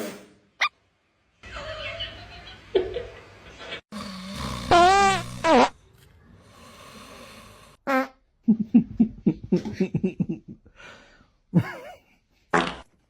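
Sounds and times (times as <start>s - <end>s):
pet farting: 4.0s - 5.8s.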